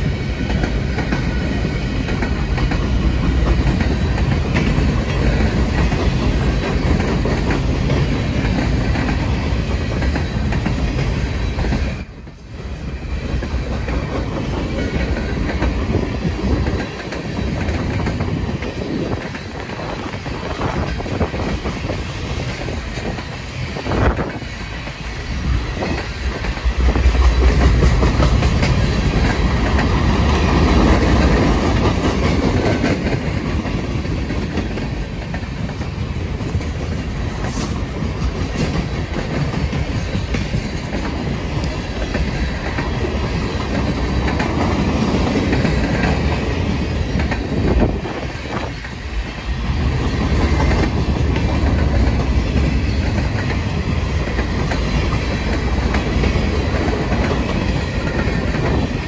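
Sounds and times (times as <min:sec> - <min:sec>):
steel wheels rumbling on rails: 0:00.0 - 0:59.0
wheels clacking over rail joints: 0:13.3 - 0:59.0.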